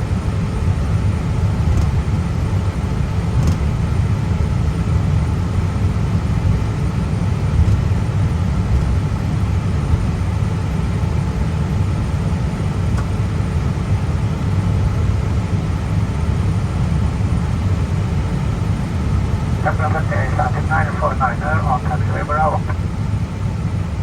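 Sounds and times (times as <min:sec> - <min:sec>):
jet engines idling: 0:16.4 - 0:24.0.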